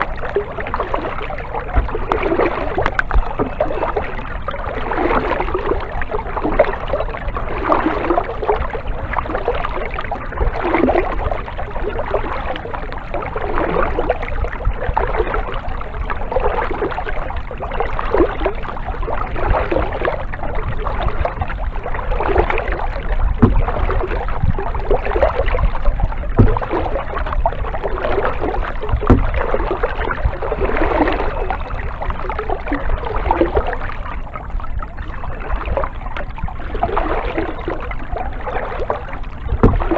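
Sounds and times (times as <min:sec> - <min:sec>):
kayak paddle splashing: 0:00.0 - 0:39.9
light knocks: 0:26.4 - 0:26.6.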